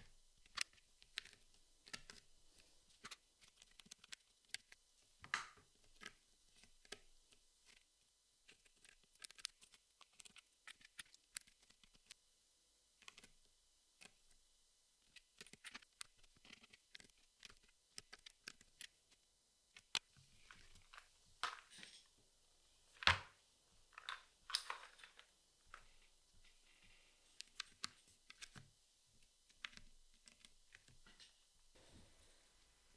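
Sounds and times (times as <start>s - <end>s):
puzzle pieces clicking and tapping: 24.0s - 25.9s.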